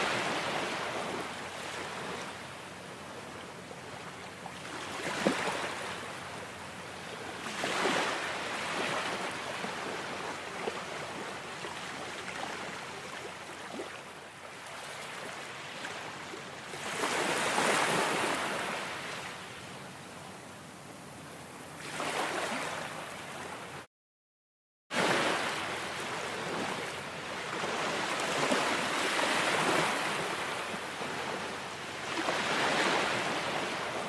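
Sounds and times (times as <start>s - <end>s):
ocean surf washing: 0.0s - 2.7s, 25.0s - 34.0s.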